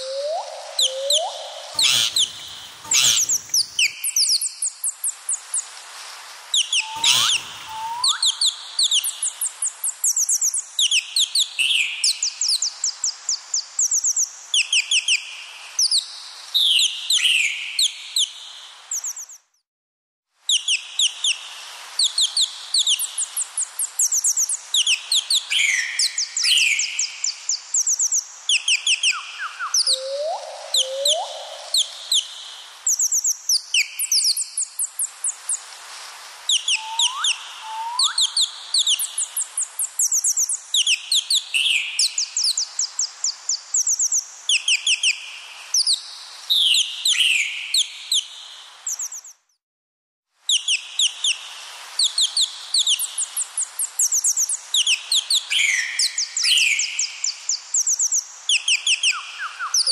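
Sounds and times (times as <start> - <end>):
birds chirping: 0.0 - 4.2, 6.7 - 8.2.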